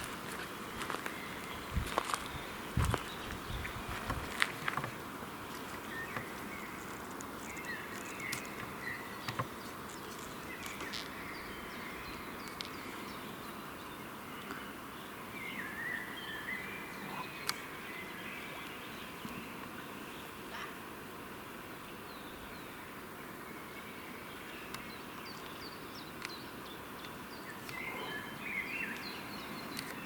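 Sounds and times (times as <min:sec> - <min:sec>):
flying insects buzzing: 0:00.0 - 0:15.1
faint wavering bird calls: 0:21.9 - 0:30.0.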